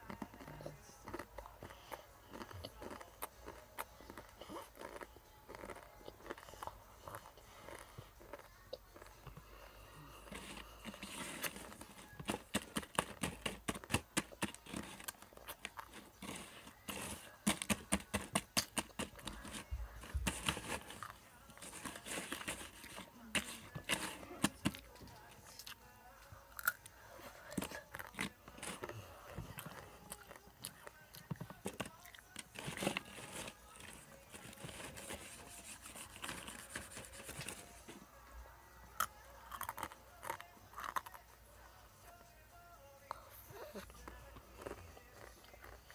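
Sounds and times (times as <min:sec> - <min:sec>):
crunchy food chewing: 0:00.0 - 0:37.6, 0:38.9 - 0:41.4, 0:43.8 - 0:45.9.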